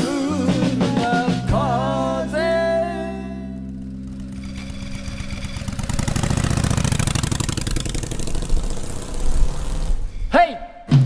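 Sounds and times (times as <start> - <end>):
small motorcycle engine running: 3.4 - 10.1.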